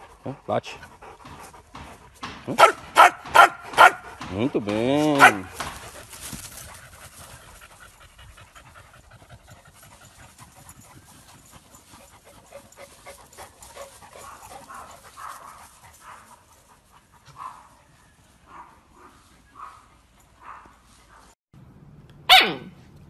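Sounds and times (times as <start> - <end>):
dog panting: 0.0 - 4.3, 5.0 - 17.8.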